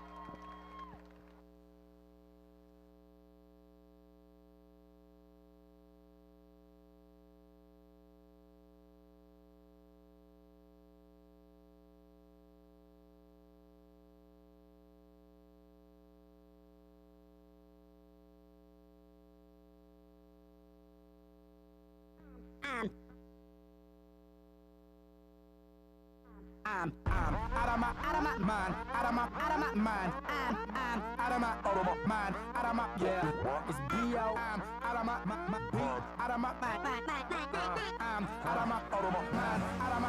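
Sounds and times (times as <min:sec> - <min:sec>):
electronic drone: 0:27.1 - 0:40.0.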